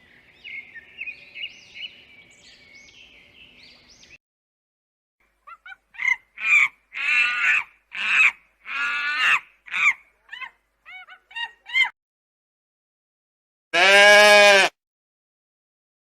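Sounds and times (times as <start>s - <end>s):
honking animal calls: 13.8s - 14.7s.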